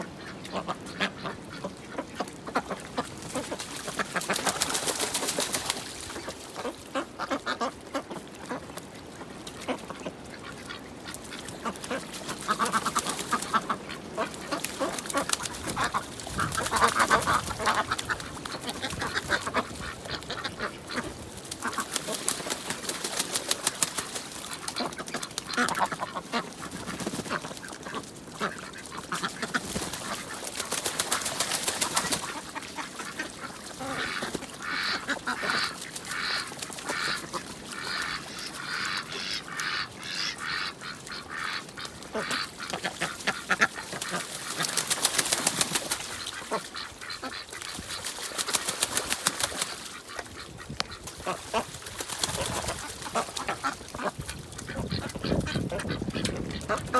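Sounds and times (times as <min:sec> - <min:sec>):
ducks quacking: 0:00.0 - 0:56.9.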